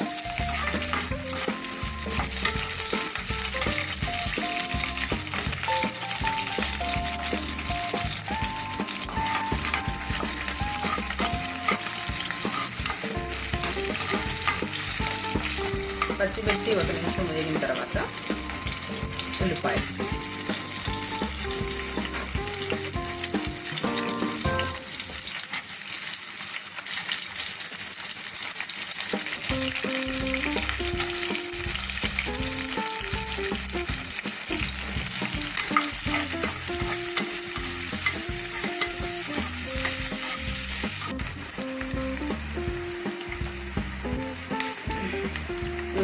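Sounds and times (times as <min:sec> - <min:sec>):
onions sizzling in oil: 0:00.0 - 0:46.0
stirring in a pot: 0:00.1 - 0:27.5.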